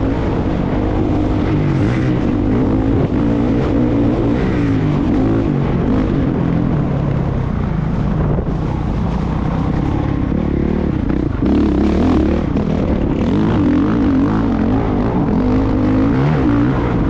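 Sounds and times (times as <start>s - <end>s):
motocross bike engine revving: 8.6s - 17.0s.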